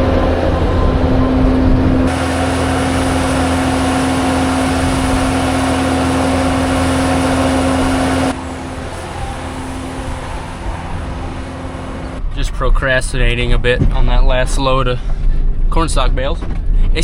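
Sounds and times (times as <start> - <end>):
vehicle engine humming: 0.0 - 12.4.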